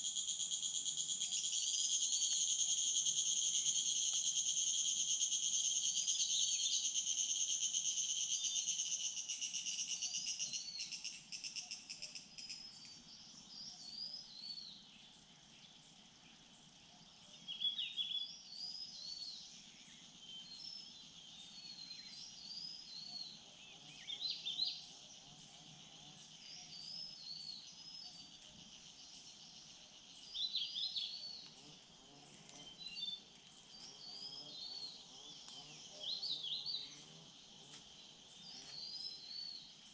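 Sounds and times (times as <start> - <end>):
insect buzzing: 0.0 - 12.6, 28.6 - 39.9
small birds chirping: 8.4 - 39.9.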